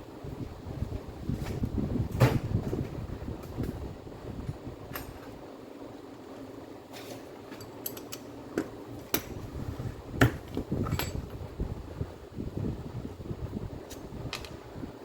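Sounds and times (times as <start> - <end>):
tools and metal parts clinking: 7.1 - 8.4, 10.5 - 11.3.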